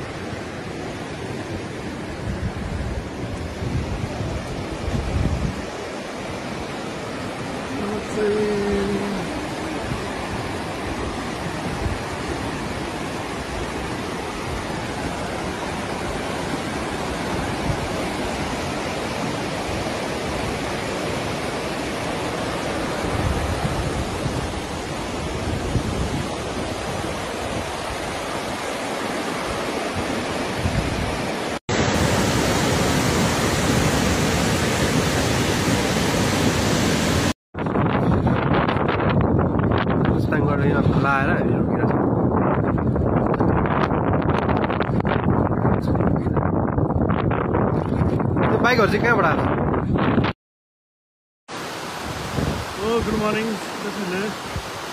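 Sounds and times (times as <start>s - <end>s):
rushing flooded river: 0.0s - 38.8s, 51.5s - 54.9s.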